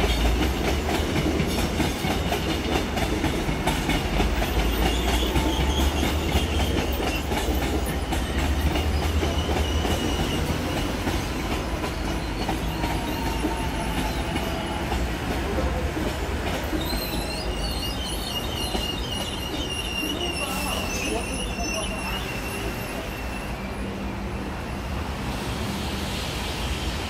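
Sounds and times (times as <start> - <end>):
train wheels rumbling on rail: 0.0 - 27.0
high wheel squeal: 4.2 - 15.2, 16.6 - 25.1.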